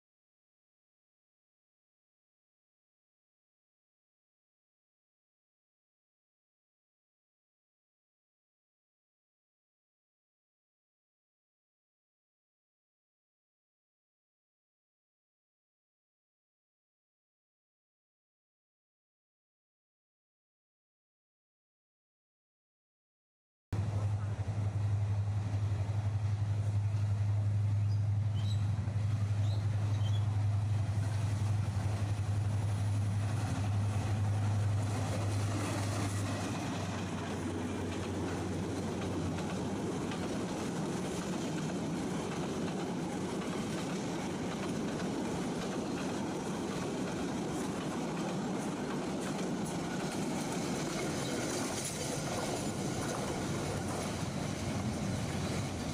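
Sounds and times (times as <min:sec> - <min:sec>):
diesel locomotive engine drone: 0:23.8 - 0:55.9
train wheels rumbling on rails: 0:23.8 - 0:55.9.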